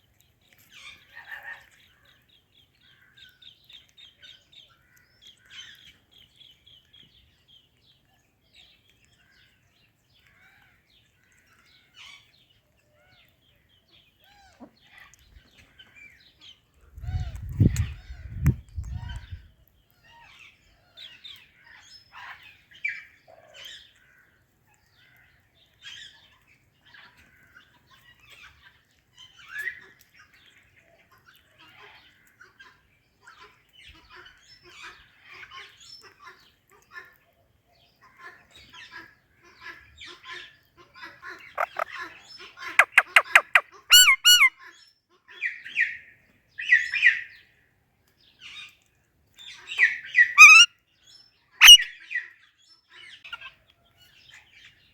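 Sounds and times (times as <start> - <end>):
parakeets chirping and squawking: 41.5 - 41.9, 42.8 - 44.5, 50.2 - 50.7, 51.6 - 51.9
sharp clicky bird notes: 41.6 - 41.9, 42.8 - 44.5.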